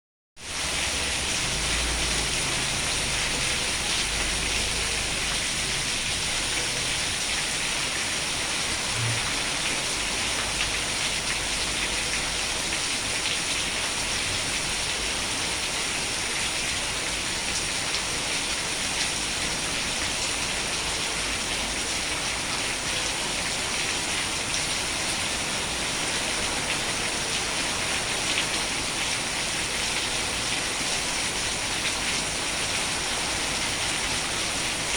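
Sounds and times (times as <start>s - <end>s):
steady rain falling: 0.4s - 34.9s.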